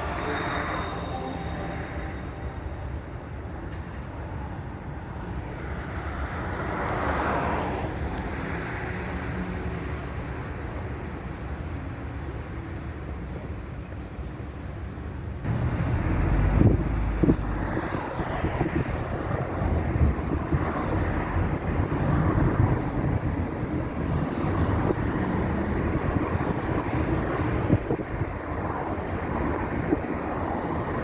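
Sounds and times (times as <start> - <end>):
vehicle and road noise: 0.0 - 31.0
wind on microphone: 15.5 - 31.0.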